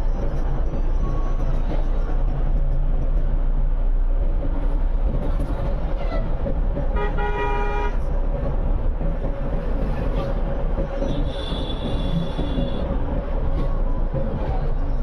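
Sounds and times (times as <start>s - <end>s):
low rumble of moving vehicles: 0.0s - 15.0s
vehicle horn: 7.0s - 8.0s, 11.2s - 12.9s.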